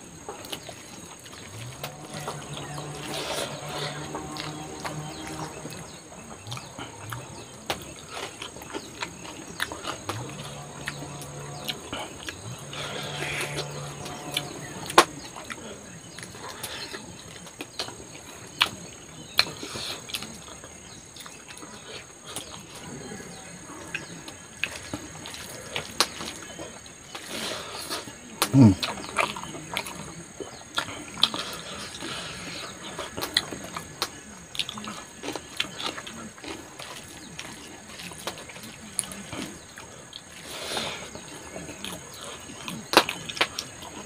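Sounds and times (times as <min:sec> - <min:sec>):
high-pitched drone: 0:10.1 - 0:15.5
man humming mm: 0:10.1 - 0:15.8, 0:28.4 - 0:29.0.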